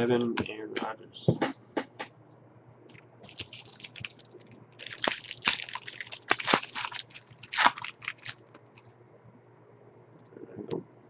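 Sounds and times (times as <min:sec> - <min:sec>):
card packaging crinkling: 0:03.2 - 0:08.9.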